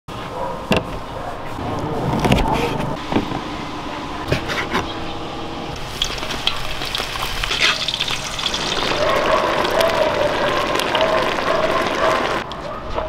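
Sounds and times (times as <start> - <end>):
food sizzling in a hot pan: 5.8 - 12.4
sharp crackles: 5.8 - 12.4.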